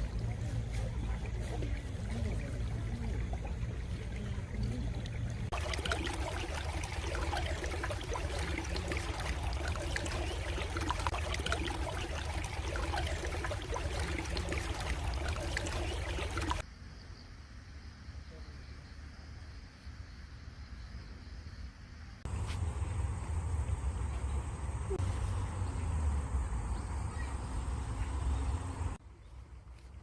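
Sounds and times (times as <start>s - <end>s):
stream water trickling: 0.0s - 16.6s, 22.3s - 29.0s.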